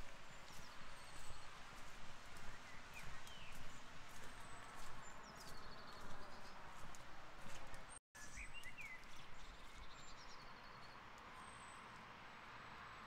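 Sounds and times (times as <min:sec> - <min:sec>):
small birds twittering: 0:02.3 - 0:07.0.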